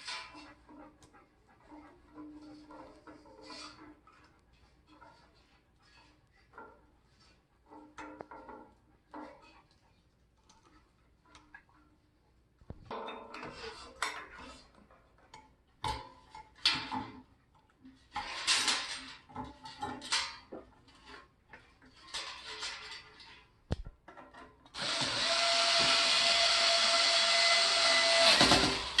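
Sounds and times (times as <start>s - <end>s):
rustling and clinks of parts: 17.9s - 24.8s
small power tool motor running: 24.8s - 29.0s.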